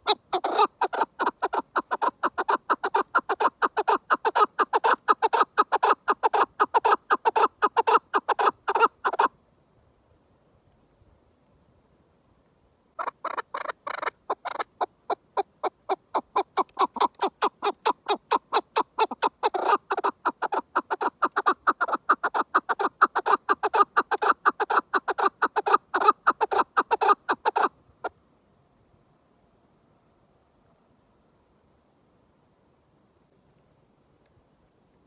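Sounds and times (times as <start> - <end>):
partridge calling: 0.0 - 9.3, 13.0 - 27.7.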